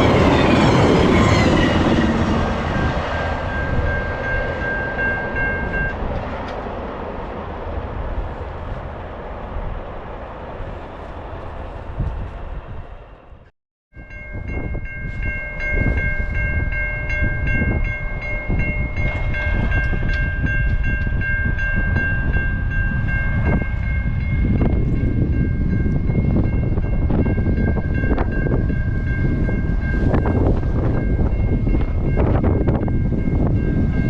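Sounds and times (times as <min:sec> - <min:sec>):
train rumbling past: 0:00.0 - 0:34.0
high ringing bell tones: 0:03.4 - 0:06.0, 0:14.0 - 0:34.0.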